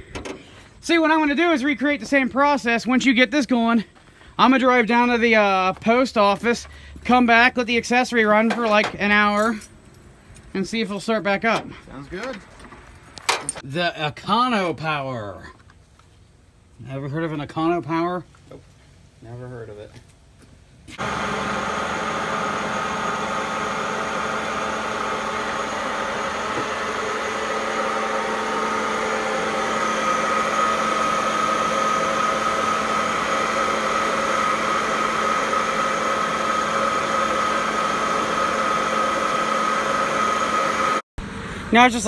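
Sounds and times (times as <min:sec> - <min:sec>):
engine humming with faint whine: 0:20.9 - 0:42.0.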